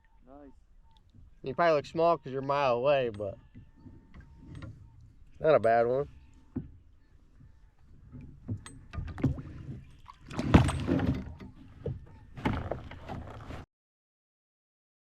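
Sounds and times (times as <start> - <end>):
water splashing: 0.0 - 13.6
knocks and scrapes: 8.1 - 13.7.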